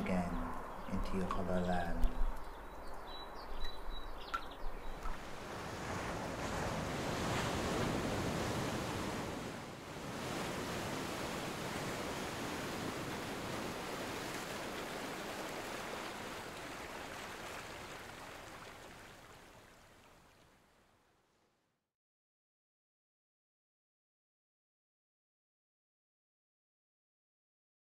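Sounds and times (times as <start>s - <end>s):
surf washing in: 5.2s - 20.0s.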